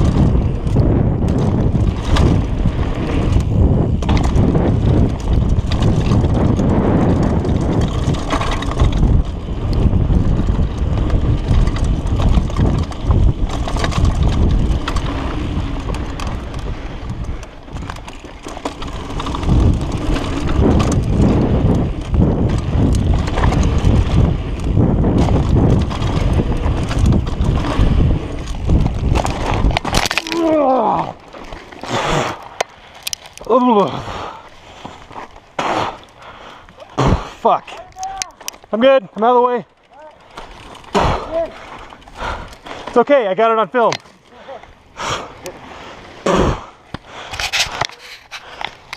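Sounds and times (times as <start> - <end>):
wind buffeting microphone: 0.0 - 38.8, 39.5 - 43.1
bike rattling over bumps: 0.0 - 48.9
bike tyres on dirt: 0.0 - 48.9.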